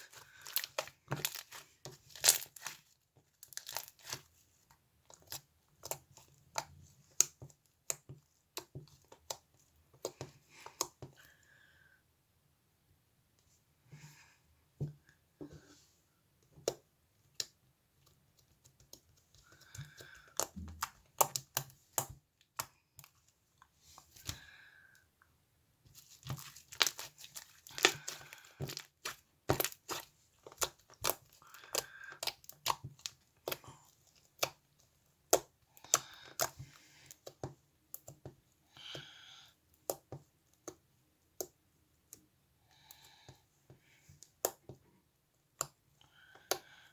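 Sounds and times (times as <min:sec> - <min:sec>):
tearing and crinkling: 0:00.0 - 0:04.3, 0:26.0 - 0:31.6.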